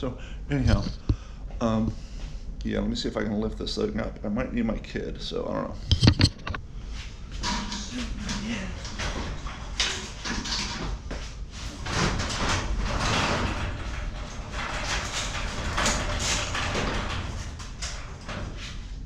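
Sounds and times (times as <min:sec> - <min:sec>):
garage door rattling and scraping: 0:05.8 - 0:19.0.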